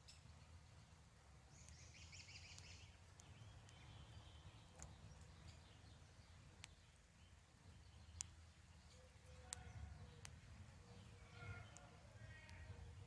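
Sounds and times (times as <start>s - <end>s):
faint background hum: 0.0s - 13.0s
faint high chirping: 1.5s - 13.0s
soft clicks: 1.6s - 5.6s, 6.5s - 6.9s, 8.0s - 12.8s.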